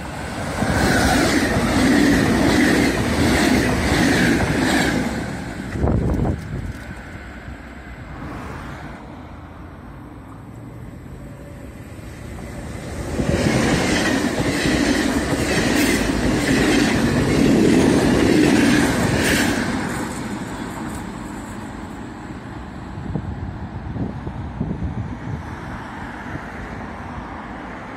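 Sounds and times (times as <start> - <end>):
passenger train rumbling past: 0.0 - 27.9
wheels clicking over rail joints: 0.4 - 7.8.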